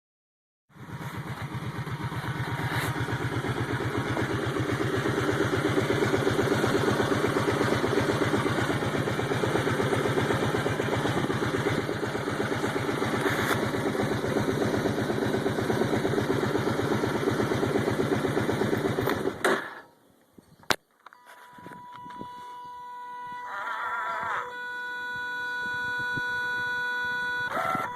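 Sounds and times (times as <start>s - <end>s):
atv engine idling: 0.8s - 19.8s.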